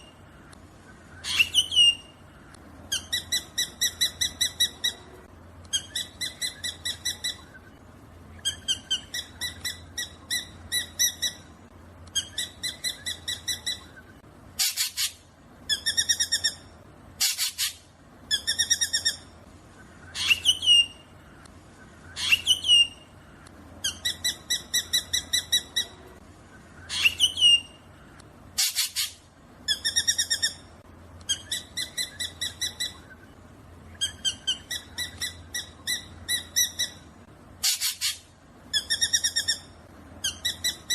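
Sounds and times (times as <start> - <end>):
harsh rasping bird calls: 0.0 - 11.5, 12.1 - 40.9
bird calling in rapid notes: 0.8 - 7.8, 12.1 - 21.2, 21.8 - 23.2, 26.6 - 40.9.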